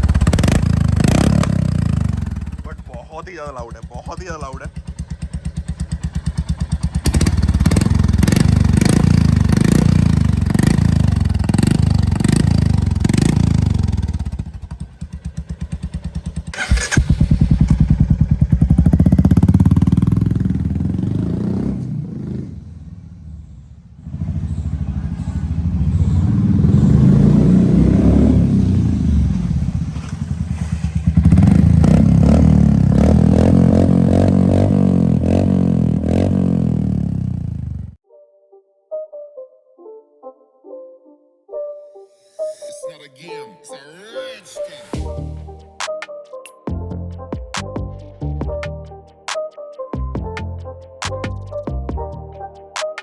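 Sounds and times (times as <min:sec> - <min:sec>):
loud motorcycle engine revving: 0:00.0 - 0:02.9, 0:03.5 - 0:38.0.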